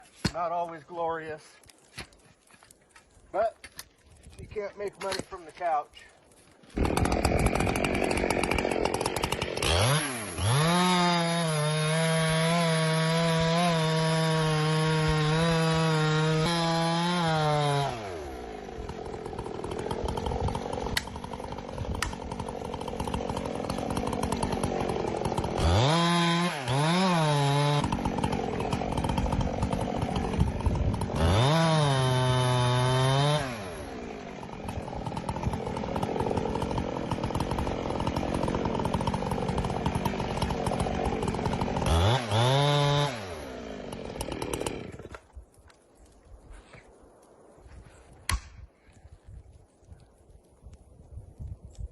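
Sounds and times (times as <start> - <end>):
chainsaw cutting: 4.7 - 45.4.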